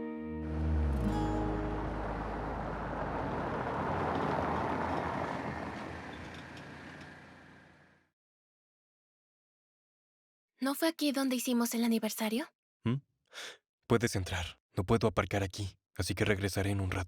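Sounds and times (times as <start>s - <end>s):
vehicle engine and road noise: 0.4s - 8.0s.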